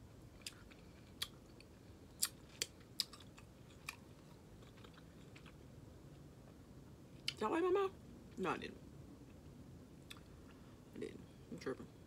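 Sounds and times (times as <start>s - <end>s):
chewing: 0.4s - 5.6s.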